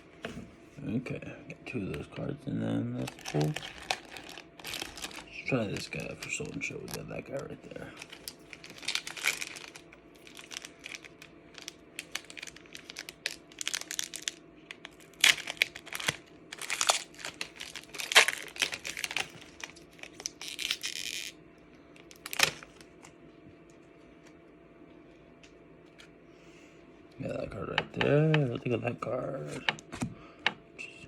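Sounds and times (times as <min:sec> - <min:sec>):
foil wrapper crinkling and tearing: 0:03.0 - 0:21.4, 0:22.0 - 0:23.1.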